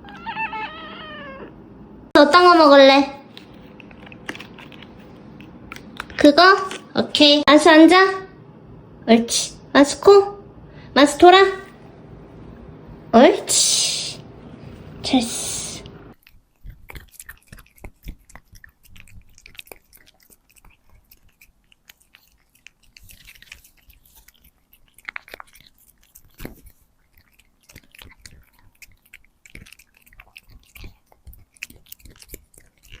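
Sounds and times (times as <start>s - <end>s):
cat chewing a treat: 3.2s - 6.2s, 16.2s - 33.0s.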